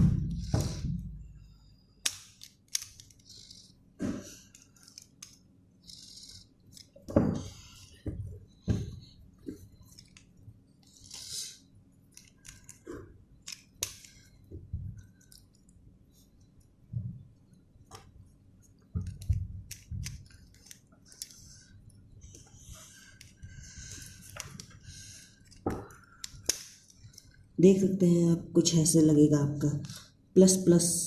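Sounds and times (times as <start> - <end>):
plastic puzzle cube clicking: 2.0 - 3.7, 12.1 - 12.8, 19.0 - 21.4.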